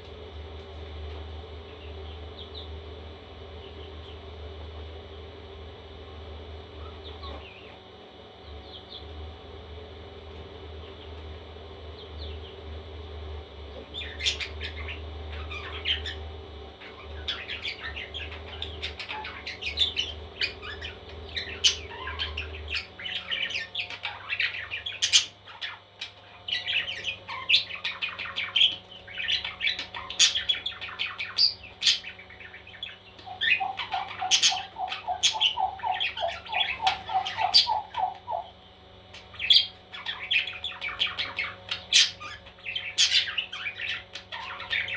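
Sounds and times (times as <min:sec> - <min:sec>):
low steady hum: 0:00.0 - 0:44.9
baby parrots chirping and squawking: 0:14.0 - 0:16.2, 0:16.8 - 0:38.5, 0:39.1 - 0:44.9.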